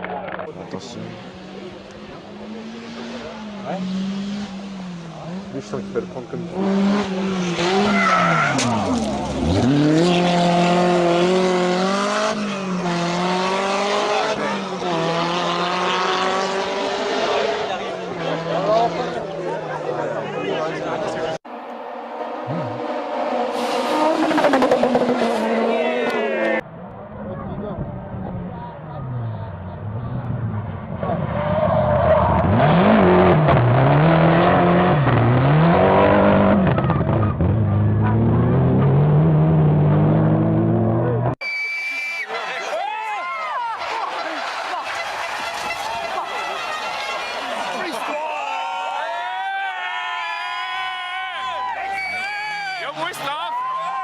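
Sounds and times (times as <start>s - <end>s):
rally car engine revving: 0.0s - 41.4s
road and tyre noise: 0.0s - 54.0s.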